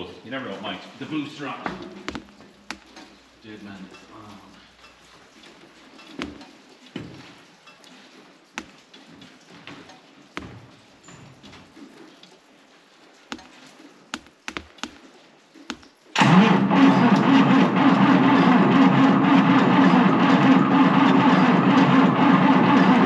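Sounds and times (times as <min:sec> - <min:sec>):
faint clicks and knocks: 0:01.6 - 0:16.2
engine starter cranking: 0:16.2 - 0:23.0.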